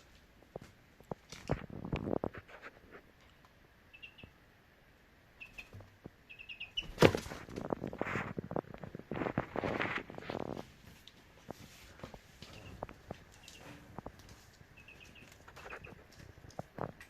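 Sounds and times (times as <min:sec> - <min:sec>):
chick peeping: 0:03.3 - 0:04.4, 0:05.4 - 0:07.1, 0:12.5 - 0:13.8, 0:14.6 - 0:16.6.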